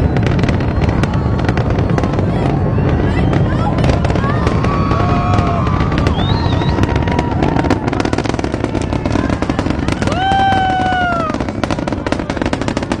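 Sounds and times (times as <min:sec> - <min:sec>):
rocket engine roar: 0:00.0 - 0:13.0
person whooping: 0:10.0 - 0:11.4.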